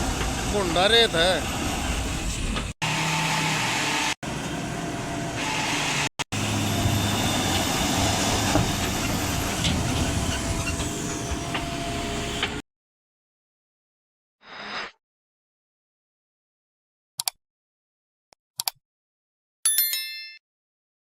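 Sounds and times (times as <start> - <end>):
diesel engine running: 0.0 - 12.6.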